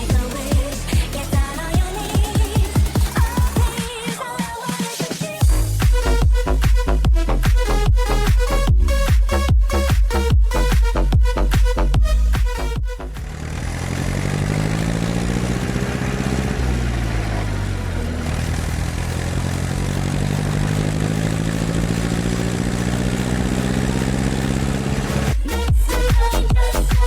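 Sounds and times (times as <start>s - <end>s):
dance music: 0.0s - 27.0s
diesel engine revving: 5.4s - 27.0s.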